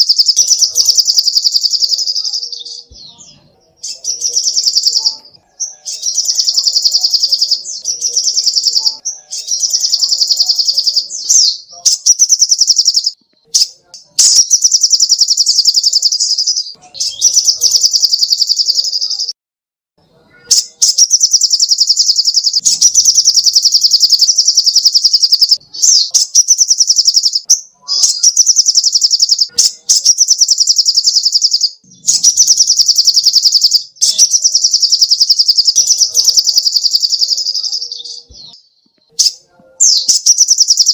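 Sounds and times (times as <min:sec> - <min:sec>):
bird singing high trills: 0:00.0 - 0:19.3, 0:20.3 - 0:40.9.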